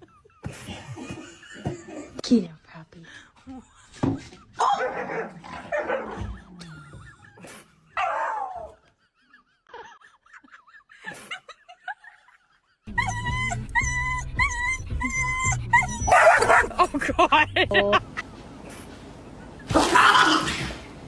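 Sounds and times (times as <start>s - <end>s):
dog whimpering and yipping: 12.9s - 16.7s.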